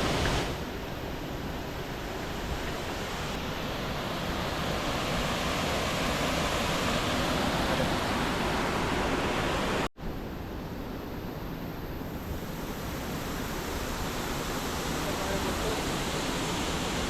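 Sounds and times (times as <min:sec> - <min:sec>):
waterfall roaring: 0:02.4 - 0:09.9, 0:12.4 - 0:17.0.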